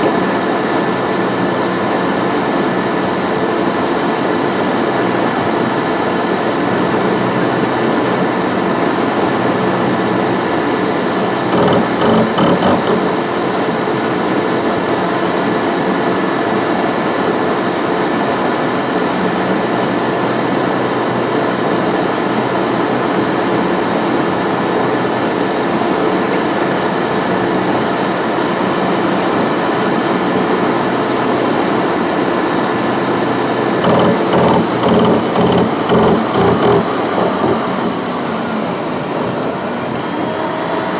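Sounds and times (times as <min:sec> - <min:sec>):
car road noise: 0:33.7 - 0:38.3.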